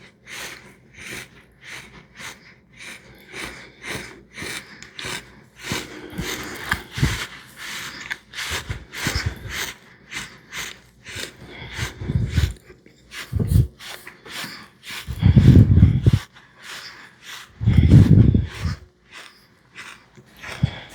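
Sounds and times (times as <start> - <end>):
mouth chewing clicks and smacks: 17.3 - 20.9.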